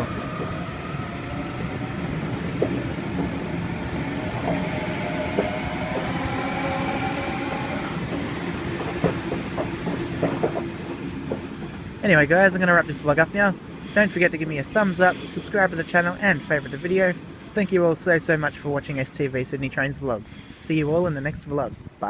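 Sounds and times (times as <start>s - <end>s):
electric train rumble: 0.0s - 19.2s
wheels clicking over rail joints: 8.0s - 11.8s.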